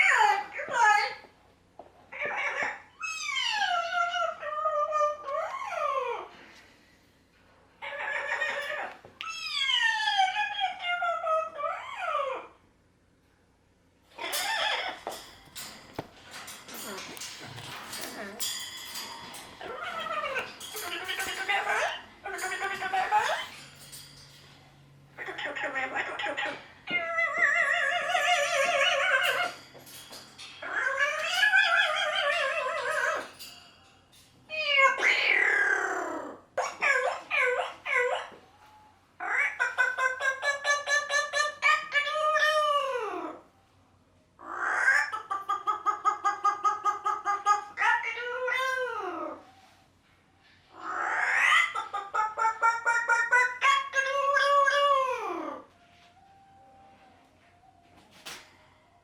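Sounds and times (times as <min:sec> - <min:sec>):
parrot meow-like calls: 0:02.1 - 0:06.4, 0:07.8 - 0:12.6, 0:14.2 - 0:15.8, 0:16.4 - 0:23.8, 0:25.2 - 0:29.7, 0:30.6 - 0:33.3, 0:34.5 - 0:43.5, 0:44.4 - 0:49.6, 0:50.7 - 0:56.8.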